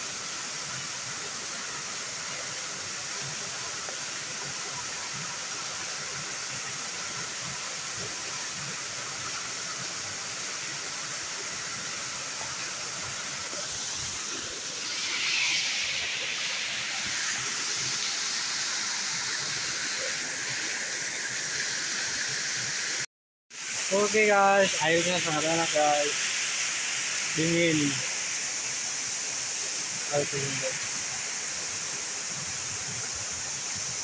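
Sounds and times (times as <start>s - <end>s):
waterfall splashing: 0.0s - 34.0s.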